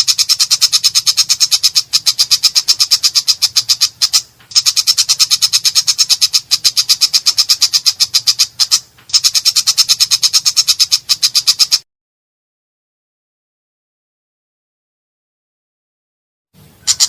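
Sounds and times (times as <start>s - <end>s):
bird giving harsh rapid chatter: 0.0s - 11.8s.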